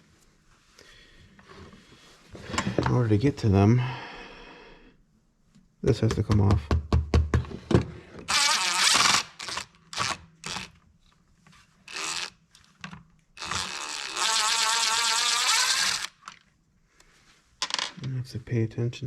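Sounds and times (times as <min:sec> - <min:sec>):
knocks and clicks of parts handled: 0:12.6 - 0:13.6
cordless power driver running: 0:13.4 - 0:16.3.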